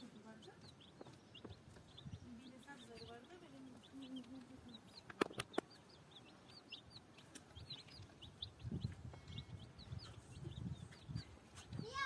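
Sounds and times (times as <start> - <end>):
chicks peeping: 0.0 - 12.0
soft low bumps: 7.2 - 11.9.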